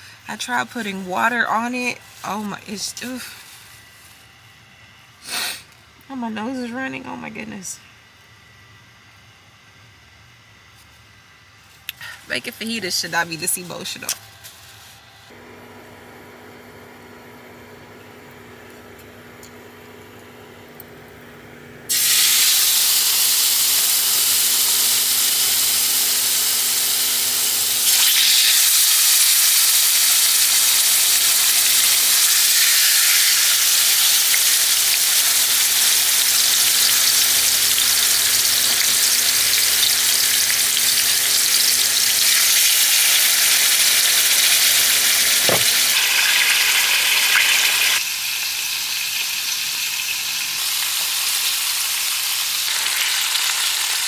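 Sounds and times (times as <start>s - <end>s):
food sizzling in a skillet: 21.9s - 54.0s.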